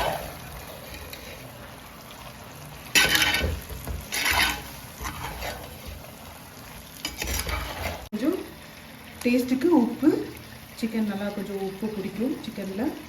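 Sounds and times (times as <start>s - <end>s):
spoon scraping a pan: 0.0s - 1.6s, 2.9s - 6.2s, 7.0s - 8.1s
food sizzling in a pan: 0.0s - 13.0s.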